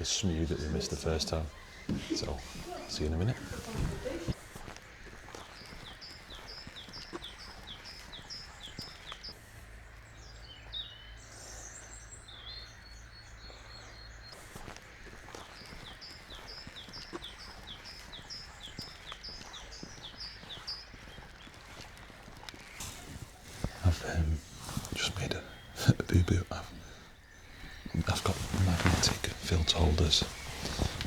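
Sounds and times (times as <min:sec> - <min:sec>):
soft bird calls: 0:00.0 - 0:31.0
faint low hum: 0:07.2 - 0:31.0.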